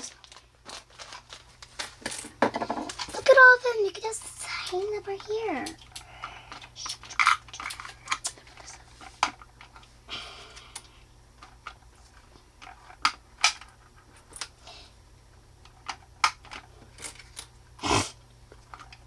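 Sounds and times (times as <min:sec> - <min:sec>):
plastic toy pieces clicking: 0:04.6 - 0:09.8.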